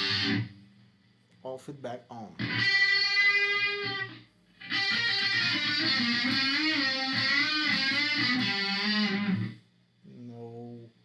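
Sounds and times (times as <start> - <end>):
electric guitar with delay: 0.0 - 0.5, 2.4 - 9.6.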